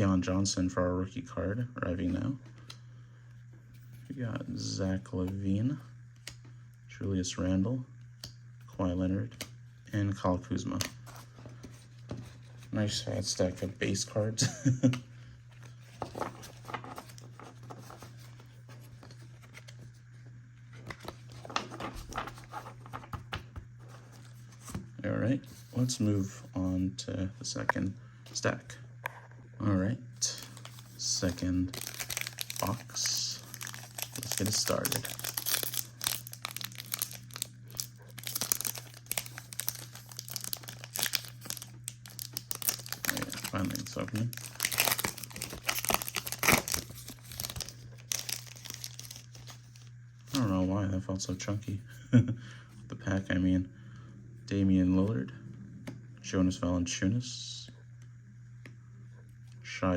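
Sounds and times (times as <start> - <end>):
steady low hum: 0.0 - 59.9
trading cards rustling: 15.0 - 20.0, 20.7 - 24.8, 30.2 - 50.6
packaging crinkling and tearing: 30.2 - 50.5.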